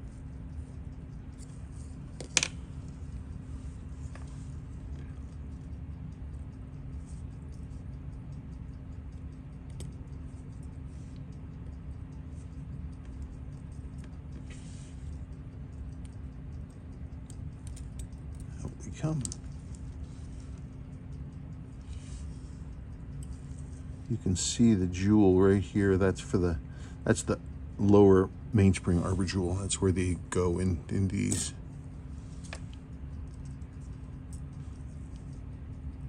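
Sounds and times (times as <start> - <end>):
steady low hum: 0.0 - 36.0
tweezers clicking on watch parts: 4.6 - 14.5, 15.1 - 23.9, 30.9 - 31.6.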